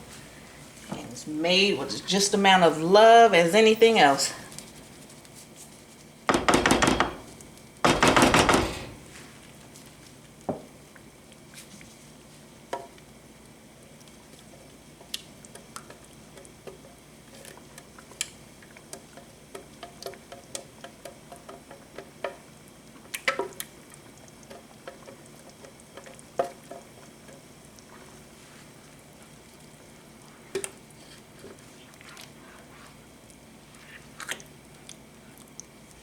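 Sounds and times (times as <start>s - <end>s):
utensil knocking against pan: 6.3s - 7.3s, 7.9s - 9.0s.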